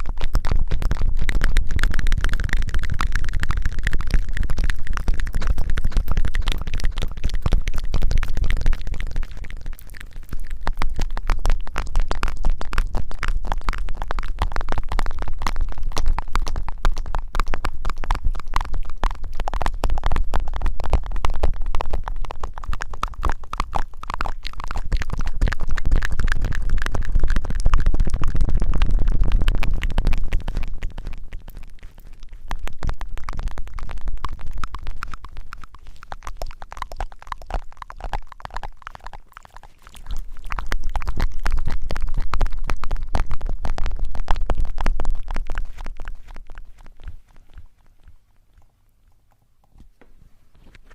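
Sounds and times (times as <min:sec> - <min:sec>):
rubbing against microphone: 0:28.4 - 0:42.4, 0:43.4 - 0:49.2, 0:49.8 - 0:50.9.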